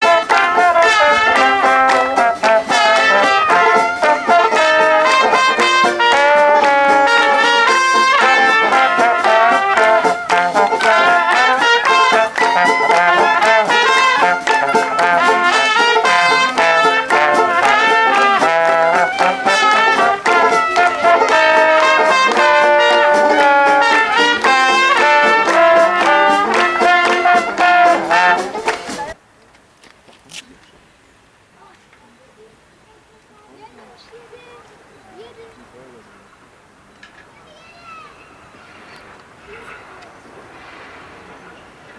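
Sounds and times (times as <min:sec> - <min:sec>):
brass melody with wavering tone: 0:00.0 - 0:29.2.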